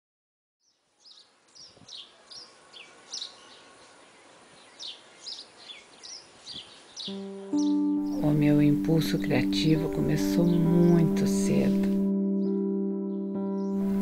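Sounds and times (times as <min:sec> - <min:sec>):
small birds chirping: 0:00.6 - 0:14.0
soft steady hiss: 0:00.7 - 0:07.1.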